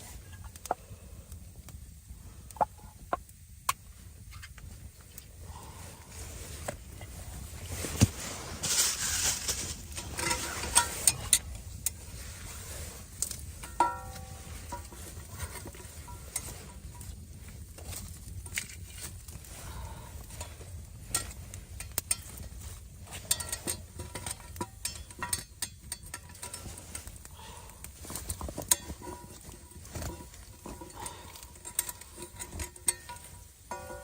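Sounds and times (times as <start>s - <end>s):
low steady rumble: 0.0s - 34.0s
clicks and light clatter: 20.4s - 34.0s.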